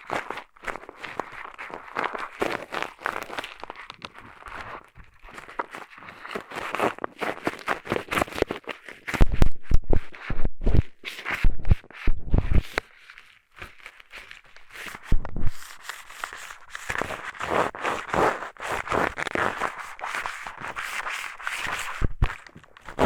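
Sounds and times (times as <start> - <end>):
eyeglasses scratching microphone: 6.2 - 12.8, 14.9 - 23.0.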